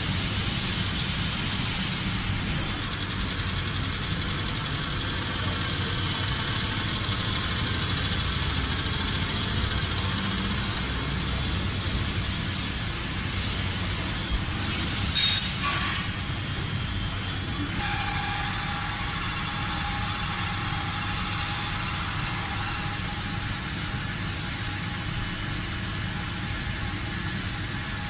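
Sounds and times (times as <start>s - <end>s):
industrial machine whining: 14.2s - 28.0s.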